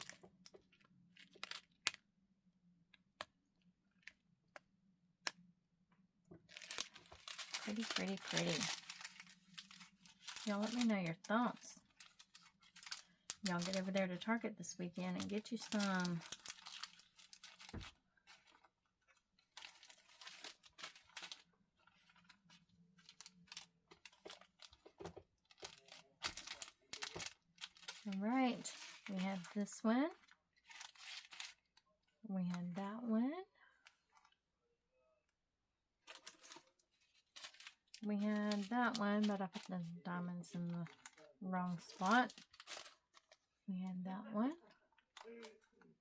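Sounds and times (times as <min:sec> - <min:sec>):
packaging crinkling and rustling: 0:00.0 - 0:02.0, 0:06.4 - 0:31.9, 0:36.0 - 0:43.5, 0:44.5 - 0:46.0.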